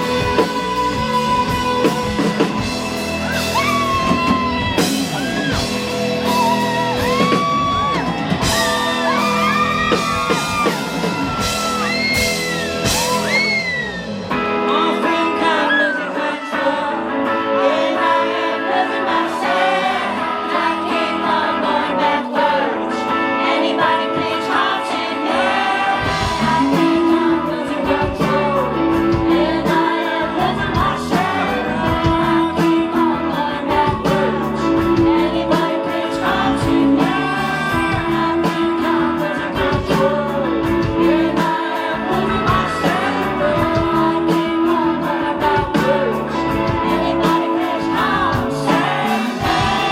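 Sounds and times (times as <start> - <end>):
bass and drums beat: 0.0 - 14.6, 25.6 - 49.9
electric guitar: 0.0 - 49.9
male lead vocal: 3.6 - 49.9.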